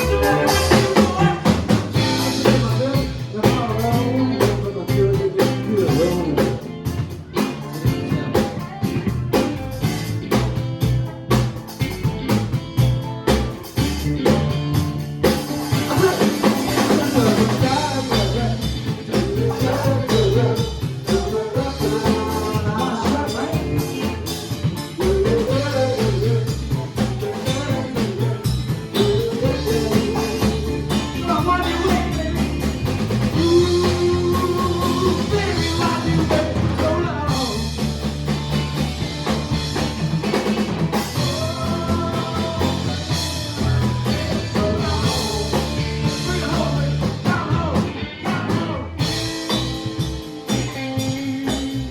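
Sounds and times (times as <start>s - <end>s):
lead guitar melody: 0.0s - 4.9s
blues rock band playing: 0.0s - 51.9s
drum kit beat: 0.0s - 51.9s.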